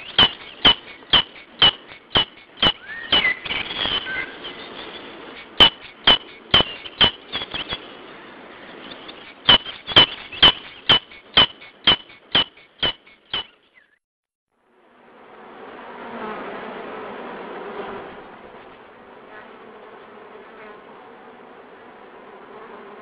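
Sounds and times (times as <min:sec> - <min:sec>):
bird clicking calls: 0:00.0 - 0:03.4, 0:05.4 - 0:07.8, 0:09.4 - 0:13.6
soft gliding bird calls: 0:00.0 - 0:14.0.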